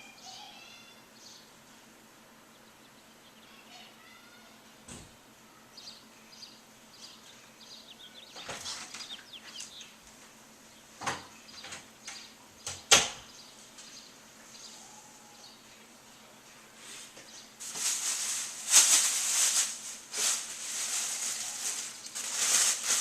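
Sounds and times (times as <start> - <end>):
small birds chirping: 0.0 - 4.8, 5.4 - 19.6.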